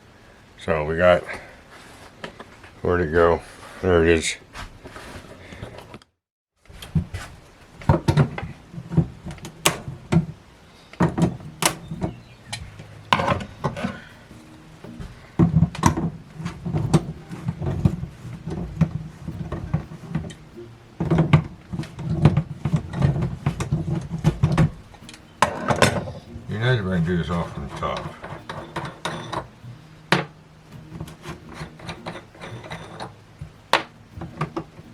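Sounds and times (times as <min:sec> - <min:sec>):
faucet fittings knocking: 0:11.0 - 0:34.8.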